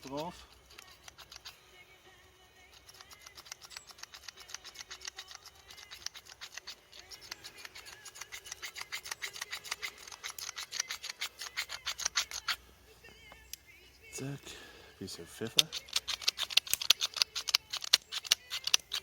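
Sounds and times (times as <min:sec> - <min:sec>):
salt grinder clicking: 0:02.7 - 0:12.6, 0:15.6 - 0:19.0.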